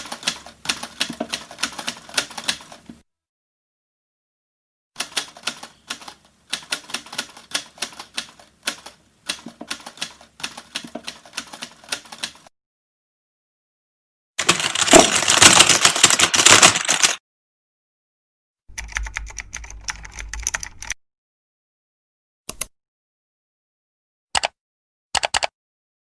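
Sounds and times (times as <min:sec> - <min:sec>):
rapid irregular clicks: 0:14.4 - 0:17.2, 0:18.7 - 0:21.0.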